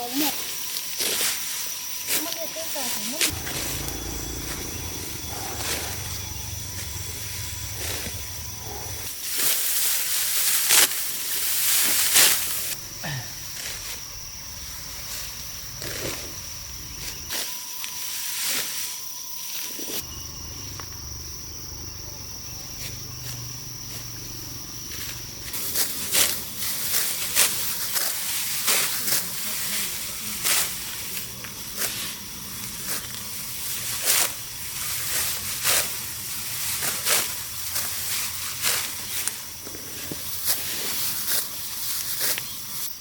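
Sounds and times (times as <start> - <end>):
rasping swishes of rice plants harvested: 0.8 - 14.0, 25.0 - 42.9
insect droning on a high note: 2.8 - 9.2, 11.8 - 25.5.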